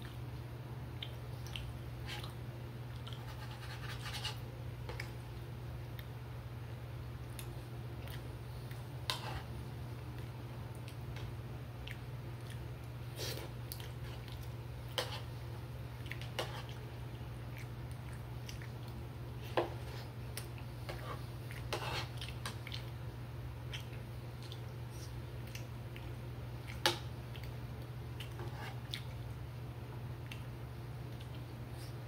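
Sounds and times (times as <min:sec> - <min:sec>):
steady low hum: 0:00.0 - 0:32.0
person chewing food: 0:07.2 - 0:23.0, 0:23.6 - 0:29.4.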